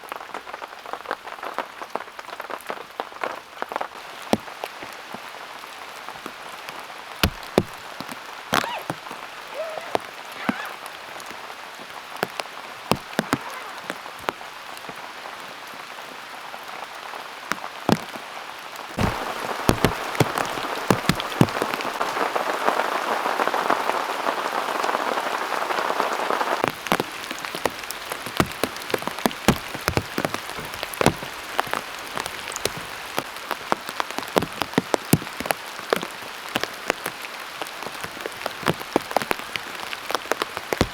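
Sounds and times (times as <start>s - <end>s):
heavy rain falling: 0.0s - 40.9s
sharp raindrops striking: 0.0s - 40.9s.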